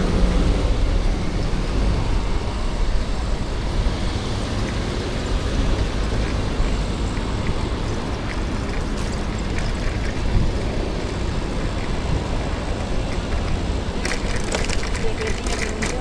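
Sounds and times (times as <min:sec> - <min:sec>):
heavy low rumble: 0:00.0 - 0:16.0
street traffic noise: 0:00.0 - 0:16.0.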